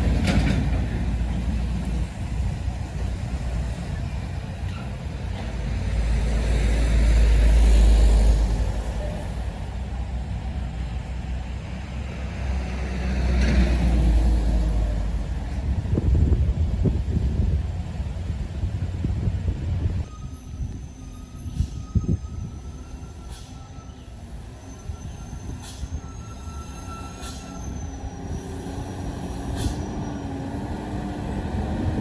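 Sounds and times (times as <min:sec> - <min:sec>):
trucks driving past: 0:00.0 - 0:20.0, 0:27.8 - 0:32.0.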